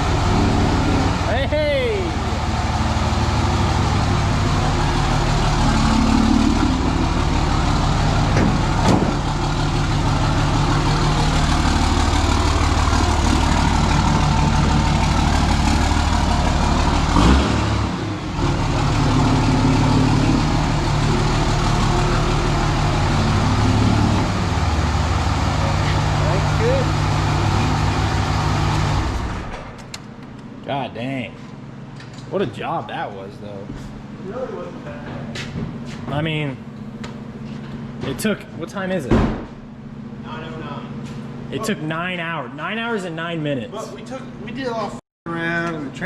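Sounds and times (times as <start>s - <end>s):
diesel engine running: 0.0s - 30.6s.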